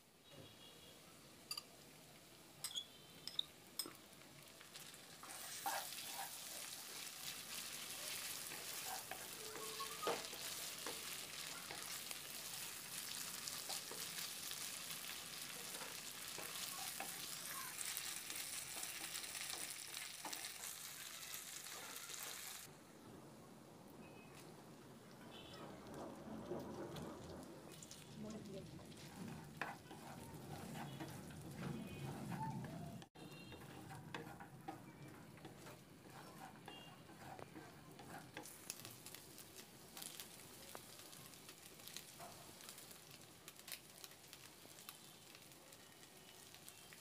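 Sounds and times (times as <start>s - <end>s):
food sizzling in a pan: 0.5s - 22.8s, 26.5s - 47.0s
utensil scraping a pan: 28.8s - 39.2s.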